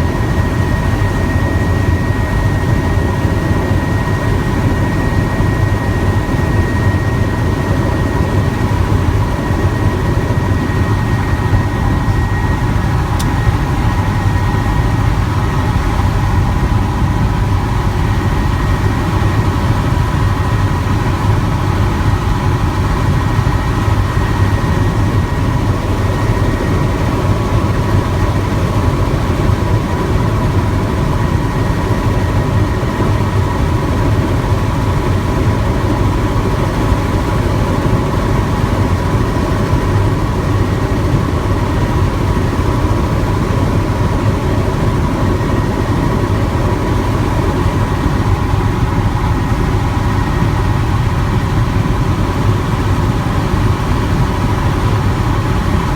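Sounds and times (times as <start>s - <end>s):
helicopter engine and rotor drone: 0.0s - 55.9s.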